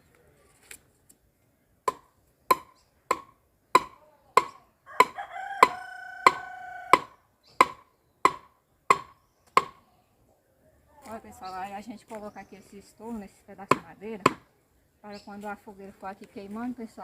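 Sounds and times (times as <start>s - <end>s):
wooden stake being hammered: 1.9s - 9.8s, 13.7s - 14.5s
rooster crowing: 4.8s - 7.2s.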